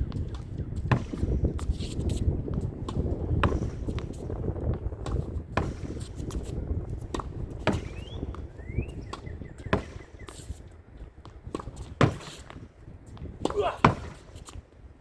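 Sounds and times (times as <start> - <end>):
tennis racket striking ball: 0.2 - 10.5, 11.5 - 12.6, 13.4 - 14.4
ball rebounding off wall: 2.5 - 6.1, 7.0 - 8.5, 9.1 - 10.0.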